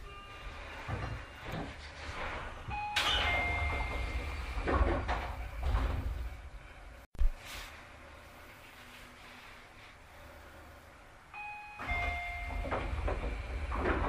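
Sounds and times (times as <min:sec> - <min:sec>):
sliding train doors shutting: 0:00.0 - 0:07.7, 0:10.3 - 0:14.0
train rumbling underneath: 0:10.0 - 0:14.0.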